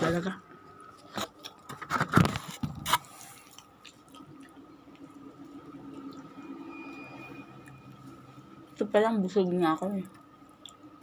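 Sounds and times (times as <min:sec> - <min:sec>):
quiet chewing: 0:03.1 - 0:06.4, 0:09.8 - 0:11.0
wet mouth clicks: 0:10.6 - 0:10.9.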